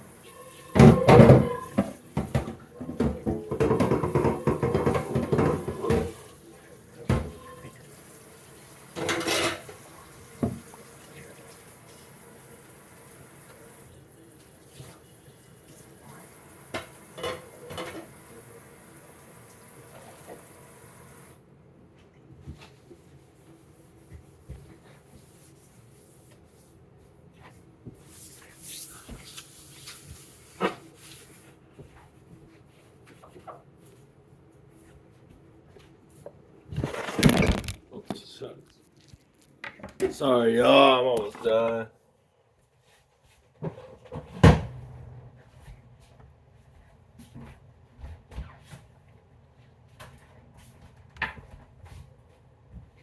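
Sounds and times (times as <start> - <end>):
kitchenware clattering: 0.6 - 6.4, 9.0 - 9.8, 16.8 - 18.1
water rushing from tap: 3.1 - 6.4.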